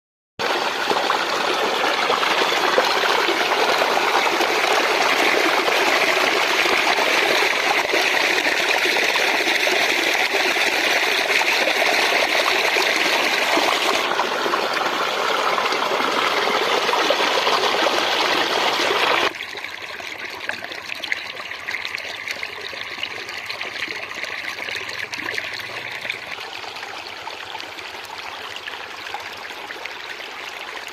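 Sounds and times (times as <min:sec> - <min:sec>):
water rushing: 0:00.4 - 0:19.4.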